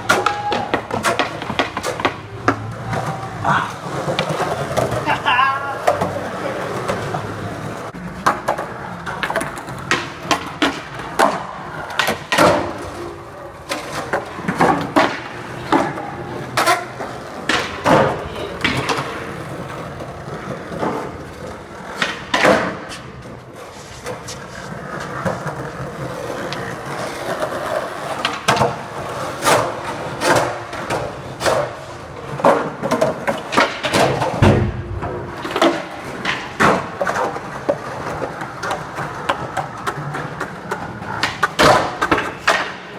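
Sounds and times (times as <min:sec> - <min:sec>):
skateboard wooden clacks: 0:00.0 - 0:05.1, 0:05.8 - 0:42.9
skateboards rolling: 0:00.0 - 0:42.9.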